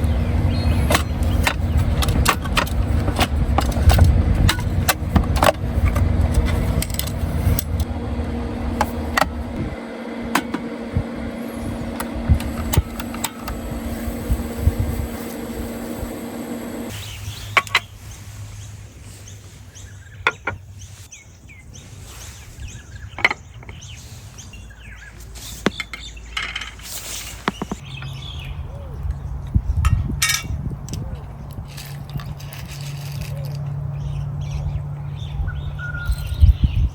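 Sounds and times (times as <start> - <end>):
camp dishes and utensils clinking: 0.0 - 18.0, 25.3 - 28.2, 29.8 - 34.1
steady mechanical hum: 0.0 - 20.2.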